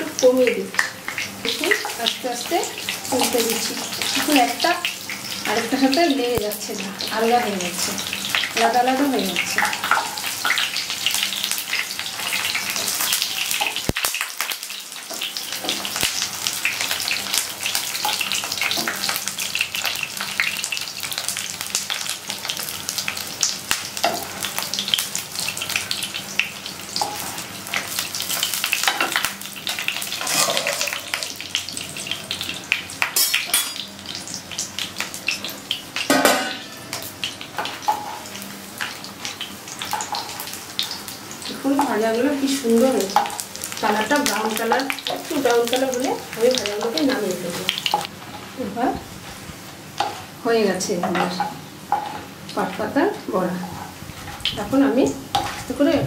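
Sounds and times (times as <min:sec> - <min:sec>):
fritters sizzling in hot oil: 0:00.0 - 0:56.0
spatula scraping and tapping wok: 0:26.9 - 0:33.9, 0:50.0 - 0:50.3, 0:50.9 - 0:56.0.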